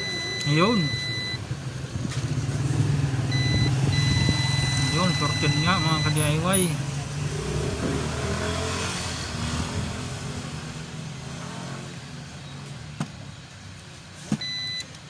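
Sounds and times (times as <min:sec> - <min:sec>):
multimeter continuity beep: 0:00.0 - 0:01.4, 0:03.3 - 0:06.5, 0:14.4 - 0:15.0
passing traffic rumbling: 0:00.0 - 0:15.0.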